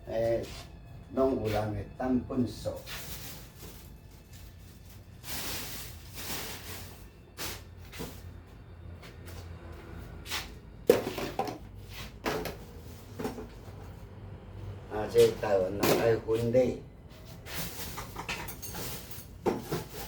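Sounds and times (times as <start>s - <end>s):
rustling of objects handled: 2.4s - 8.3s, 15.1s - 20.0s.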